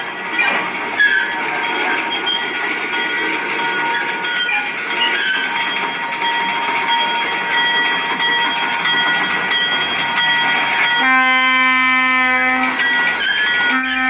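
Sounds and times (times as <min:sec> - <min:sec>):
railcar wheels squealing on rails: 0:00.0 - 0:14.0
locomotive horn blast: 0:11.0 - 0:12.9, 0:13.7 - 0:14.0.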